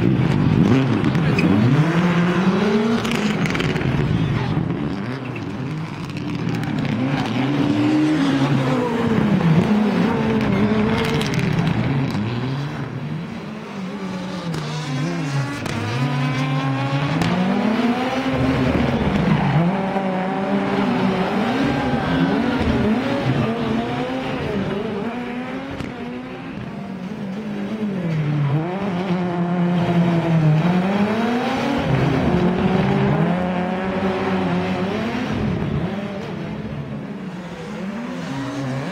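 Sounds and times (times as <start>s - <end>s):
rally car engine revving: 0.0s - 38.9s.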